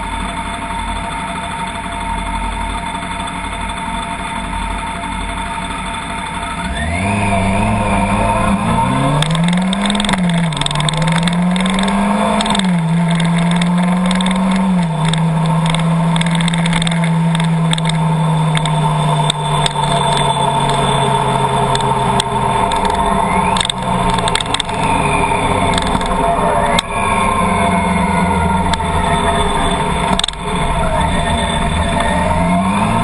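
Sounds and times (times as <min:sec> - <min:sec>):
car engine accelerating: 0:00.0 - 0:33.0
steady rushing noise: 0:05.1 - 0:33.0.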